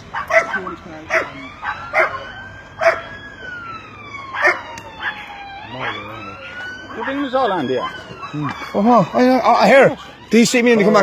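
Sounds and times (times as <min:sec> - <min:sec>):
siren wailing: 0:00.0 - 0:11.0
dog barking: 0:00.1 - 0:03.1, 0:04.3 - 0:07.3.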